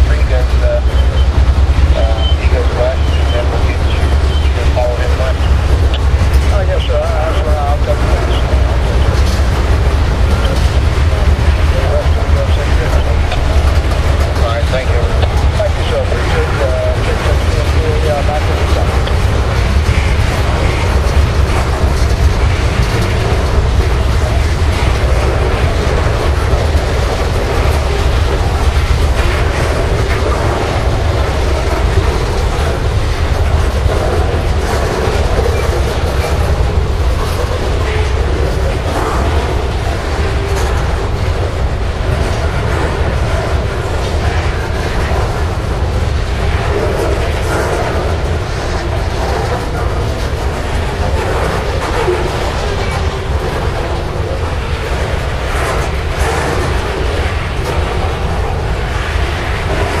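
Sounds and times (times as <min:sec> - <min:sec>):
freight train rumbling past: 0:00.0 - 1:00.0
wheels clicking over rail joints: 0:00.0 - 1:00.0.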